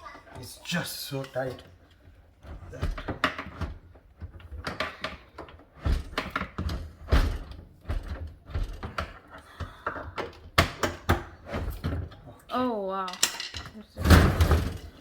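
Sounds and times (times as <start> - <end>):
clicks and knocks on metal hardware: 13.0 - 13.8.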